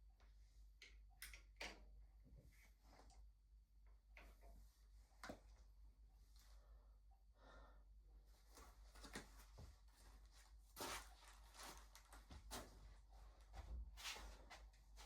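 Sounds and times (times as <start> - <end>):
soft rustle: 8.3 - 15.0.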